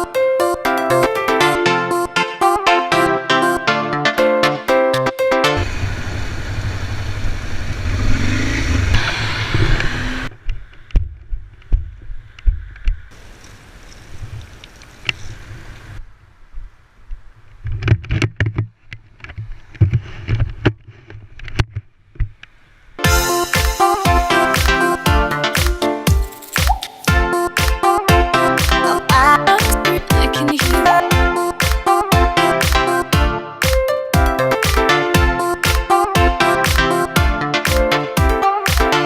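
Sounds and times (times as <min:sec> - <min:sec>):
low motorcycle engine drone: 0:05.6 - 0:10.4.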